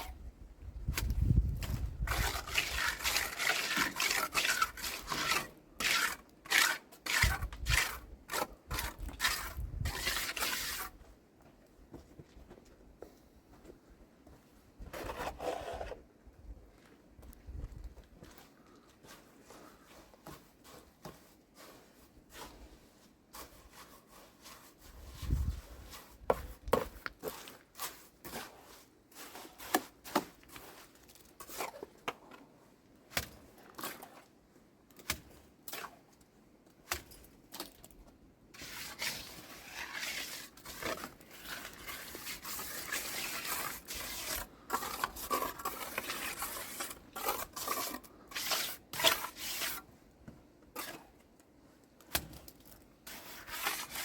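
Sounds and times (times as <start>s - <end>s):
rubbing and scraping: 0.9s - 11.0s, 14.8s - 16.0s, 19.1s - 32.0s, 38.6s - 49.9s, 50.8s - 51.2s, 53.0s - 54.0s.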